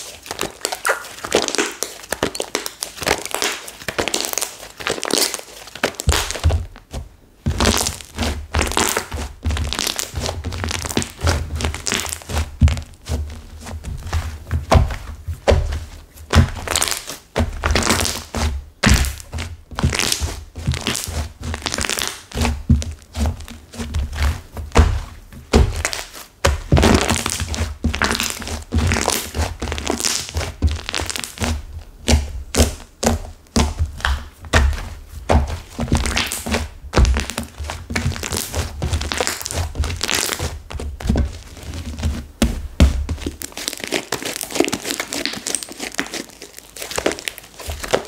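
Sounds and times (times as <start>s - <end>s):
slime squeezed by hand: 0.0s - 6.4s, 43.3s - 48.0s
crackling and crunching: 0.0s - 6.9s, 7.5s - 48.0s.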